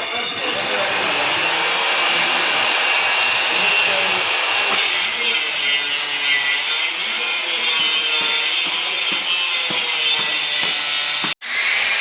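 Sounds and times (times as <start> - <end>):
power tool cutting or grinding: 0.0 - 12.0.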